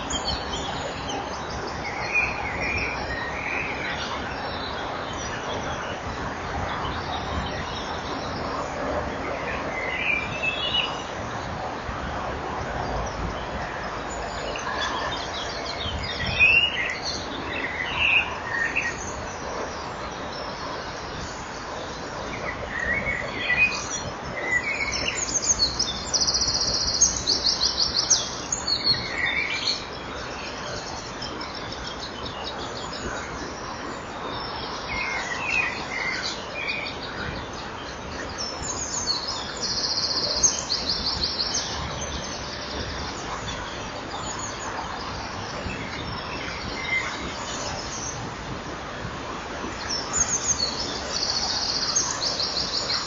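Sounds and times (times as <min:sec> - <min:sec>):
steady microphone hiss: 0:00.0 - 0:53.0
birds chirping: 0:12.5 - 0:53.0.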